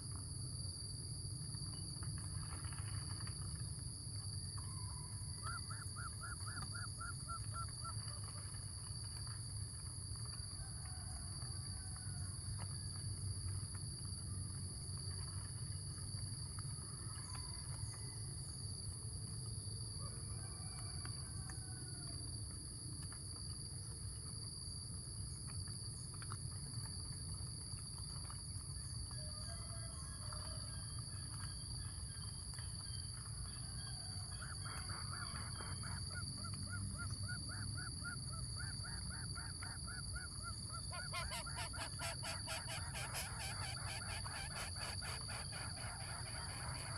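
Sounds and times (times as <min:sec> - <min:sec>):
faint bird calls: 0:34.6 - 0:46.9.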